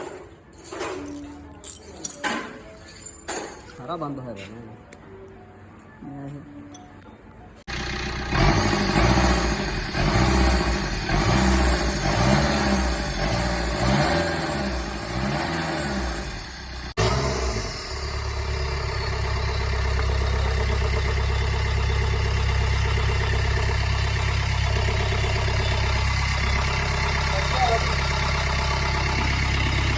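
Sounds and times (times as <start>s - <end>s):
car engine idling: 7.7s - 12.0s, 16.1s - 29.9s
car engine starting and revving: 7.7s - 29.9s.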